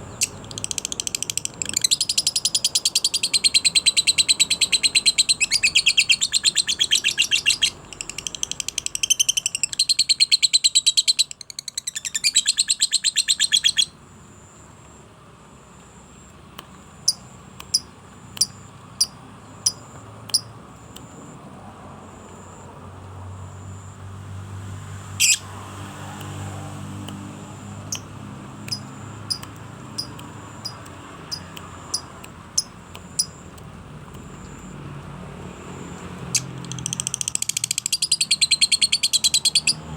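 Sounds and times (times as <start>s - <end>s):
songbird rattling trill: 0.0s - 14.0s, 16.9s - 21.2s, 25.2s - 25.5s, 26.3s - 34.7s, 35.6s - 39.9s
songbird sharp chirps: 0.0s - 14.0s, 16.5s - 21.3s, 25.2s - 25.5s, 26.2s - 34.7s, 35.7s - 39.9s.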